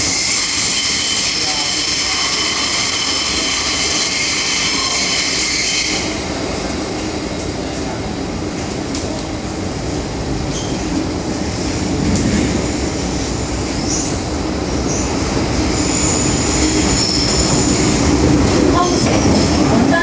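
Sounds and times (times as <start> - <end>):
high wheel squeals: 0.0 - 6.2, 14.9 - 18.0
train wheels rumbling on rails: 0.0 - 20.0.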